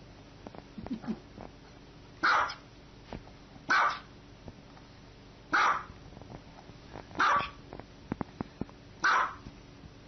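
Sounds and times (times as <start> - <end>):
dog barking: 2.2 - 2.6, 3.7 - 4.1, 5.5 - 6.0, 7.2 - 7.6, 9.0 - 9.4.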